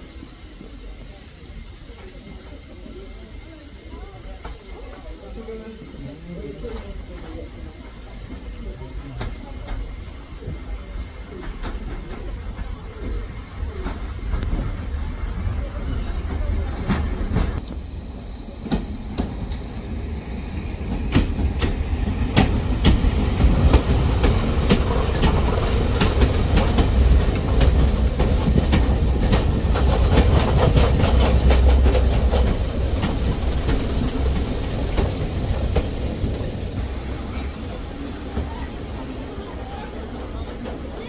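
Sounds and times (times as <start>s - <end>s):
train rumbling: 0.0s - 41.0s
train wheels clicking over rail joints: 9.2s - 17.8s, 18.5s - 37.6s.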